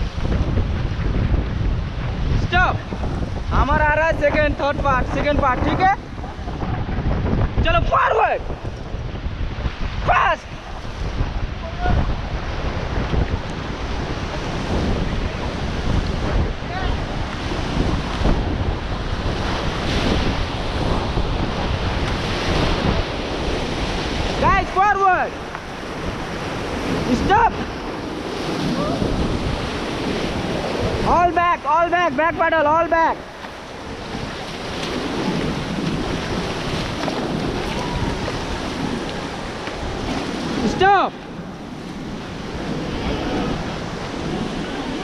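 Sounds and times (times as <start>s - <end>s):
wind buffeting microphone: 0.0s - 45.0s
whitewater rushing: 9.4s - 45.0s.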